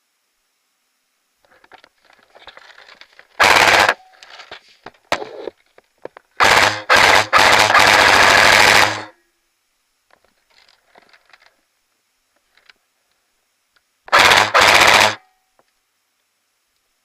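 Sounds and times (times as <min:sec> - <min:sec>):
airsoft rifle full-auto bursts: 0:03.4 - 0:04.1, 0:06.4 - 0:09.2, 0:14.1 - 0:15.3
faint rustling and scuffing: 0:04.2 - 0:05.9.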